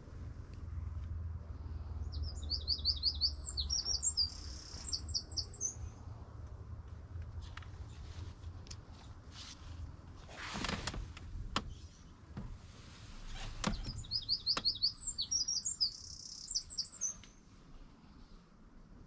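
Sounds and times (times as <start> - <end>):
bird chirping: 2.0 - 6.0, 13.4 - 17.4
brief rustle: 7.3 - 14.1.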